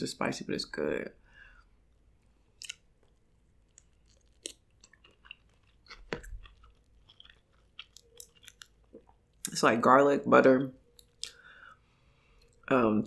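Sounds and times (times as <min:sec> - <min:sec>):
close-miked chewing: 0:02.6 - 0:09.5
shellfish crackles: 0:02.7 - 0:09.0.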